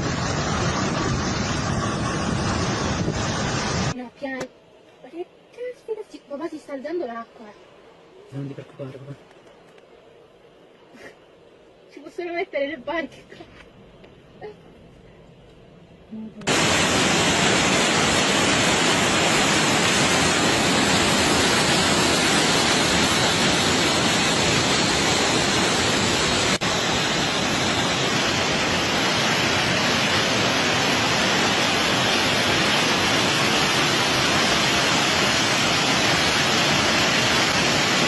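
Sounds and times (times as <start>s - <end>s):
floodwater rushing: 16.5s - 38.0s.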